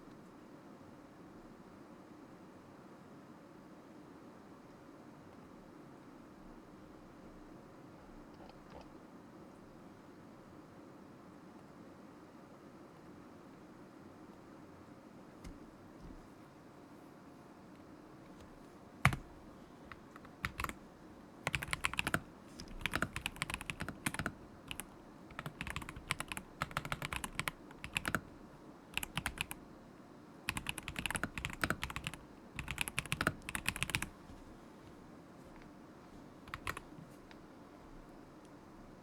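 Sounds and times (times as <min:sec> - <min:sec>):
mechanical keyboard typing: 0:19.0 - 0:19.3, 0:19.9 - 0:20.8, 0:21.4 - 0:28.3, 0:28.9 - 0:29.6, 0:30.5 - 0:34.2, 0:36.5 - 0:36.9.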